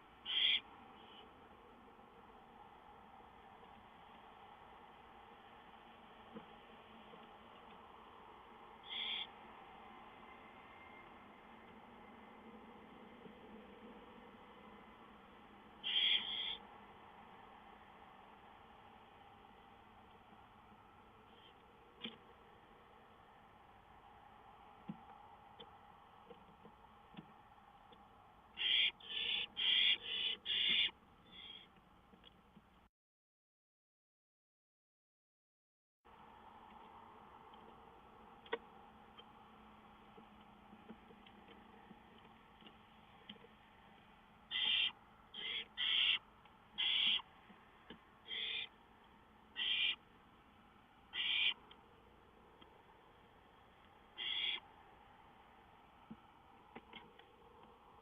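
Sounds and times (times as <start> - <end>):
owl hissing screeches: 0.2 - 1.2, 8.8 - 9.4, 15.8 - 16.6, 28.6 - 31.7, 44.5 - 46.2, 46.8 - 47.2, 48.3 - 48.7, 49.6 - 50.0, 51.1 - 51.6, 54.2 - 54.7.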